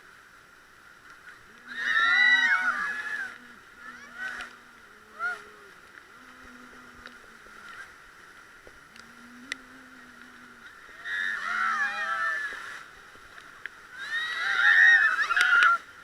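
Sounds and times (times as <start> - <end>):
river water rushing: 0.0 - 16.0
people shouting and whooping: 1.6 - 4.6, 10.9 - 12.8, 14.0 - 15.9.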